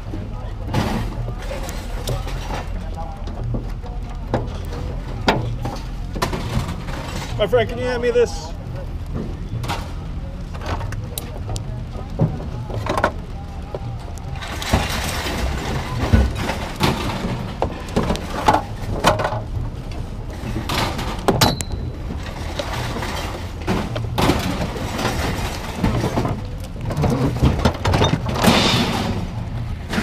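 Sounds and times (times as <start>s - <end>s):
scrap metal clanking: 4.4s - 8.0s, 14.4s - 30.0s.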